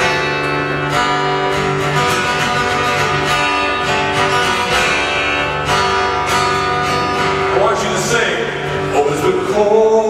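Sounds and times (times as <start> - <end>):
guitar strumming chords: 0.0 - 10.0.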